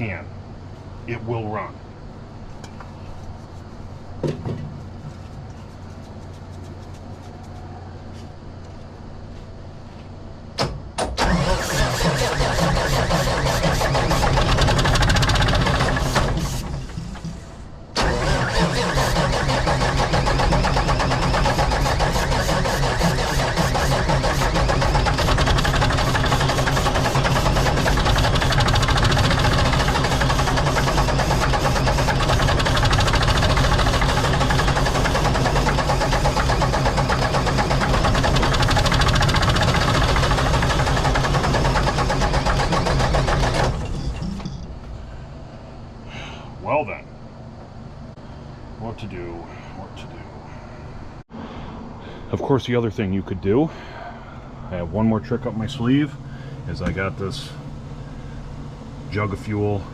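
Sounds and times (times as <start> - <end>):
low steady hum: 0.0 - 11.6, 43.7 - 59.9
diesel engine cranking: 10.5 - 45.1.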